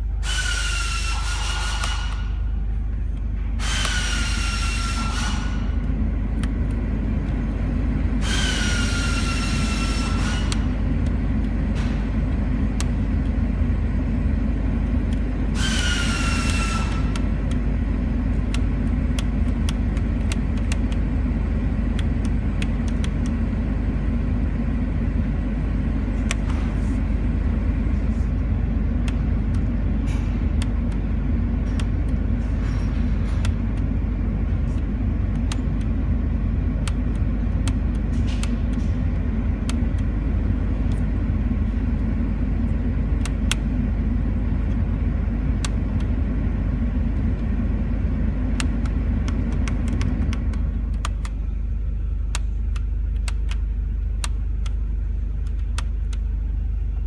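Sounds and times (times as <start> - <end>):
loud hissing with whine: 0.0 - 2.3, 3.6 - 5.7, 8.2 - 10.7, 15.5 - 17.2
car engine rumbling: 5.4 - 57.0.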